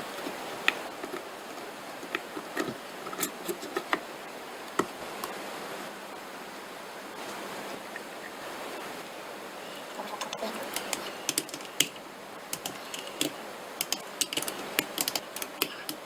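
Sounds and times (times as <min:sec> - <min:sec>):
steady hiss: 0:00.0 - 0:16.0
light clicks and knocks on parts: 0:10.7 - 0:16.0.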